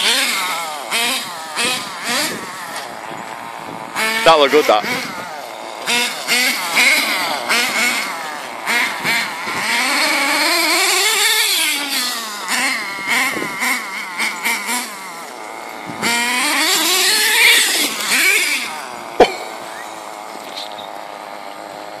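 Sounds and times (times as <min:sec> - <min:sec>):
nitro engine revving: 0:00.0 - 0:22.0.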